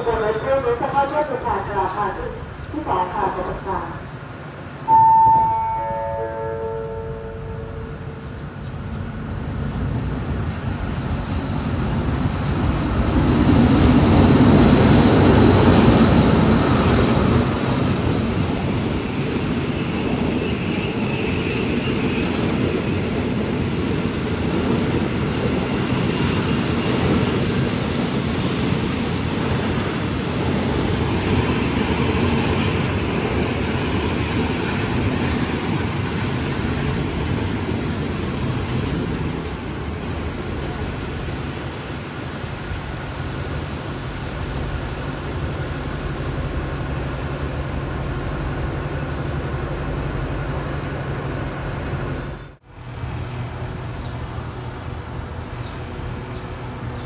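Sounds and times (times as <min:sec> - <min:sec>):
train rumbling on tracks: 0:00.0 - 0:57.0
faint high squeal: 0:04.9 - 0:08.0, 0:49.9 - 0:52.0.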